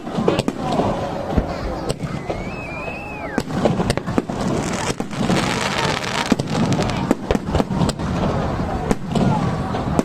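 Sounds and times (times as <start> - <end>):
fireworks crackling: 0.0 - 10.0
firework shells bursting: 3.4 - 8.1.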